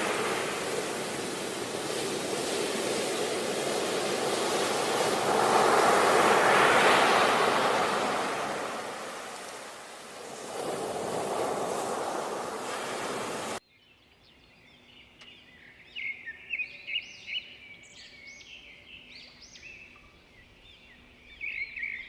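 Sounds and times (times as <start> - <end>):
ocean waves washing ashore: 0.0 - 13.6.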